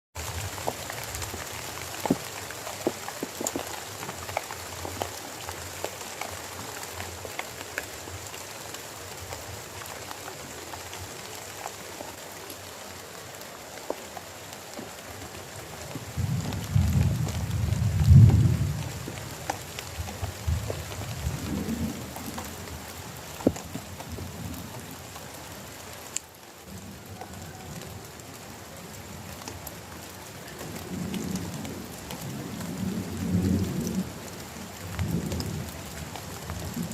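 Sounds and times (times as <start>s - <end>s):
steady rainfall: 0.1s - 36.9s
drops ticking on a surface: 2.0s - 5.2s
low rumble of thunder: 15.8s - 24.9s, 30.6s - 36.9s.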